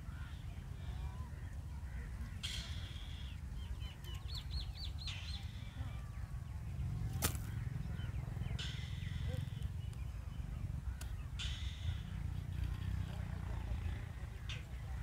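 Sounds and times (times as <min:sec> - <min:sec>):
steady low rumble: 0:00.0 - 0:15.0
harsh raspy bird call: 0:07.5 - 0:09.8, 0:10.8 - 0:12.4.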